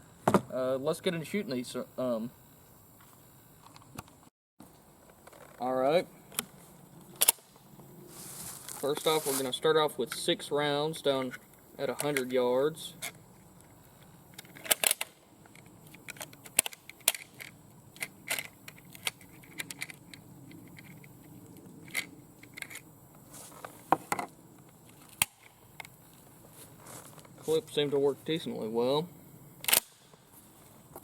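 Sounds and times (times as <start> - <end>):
rifle loading metallic clicks: 7.2 - 7.6, 14.3 - 22.8, 29.6 - 30.2.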